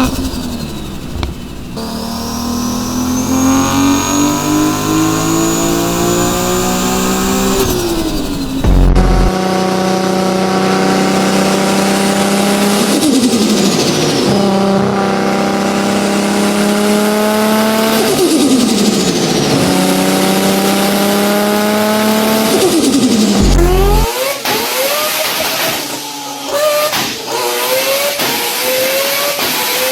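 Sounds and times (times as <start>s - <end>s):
car engine accelerating: 0.0s - 29.9s
turbo flutter: 5.7s - 9.4s.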